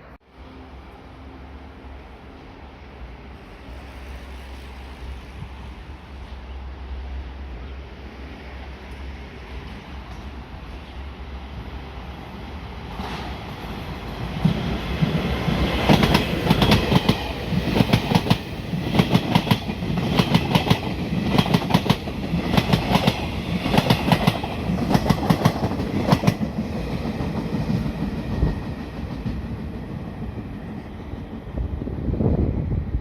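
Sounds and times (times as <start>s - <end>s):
train rumble: 0.0s - 33.0s
train wheels clickety-clack: 12.9s - 31.5s.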